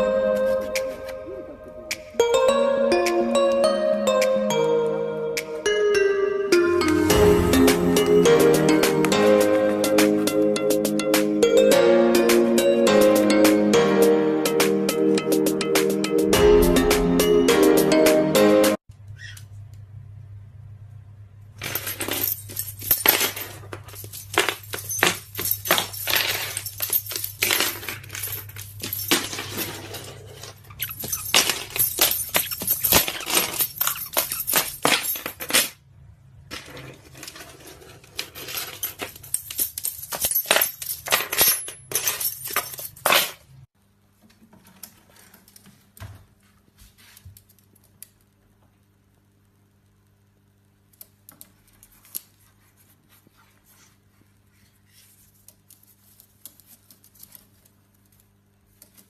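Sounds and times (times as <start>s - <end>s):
metallic clinking and jangling: 21.6s - 35.8s, 38.2s - 43.4s.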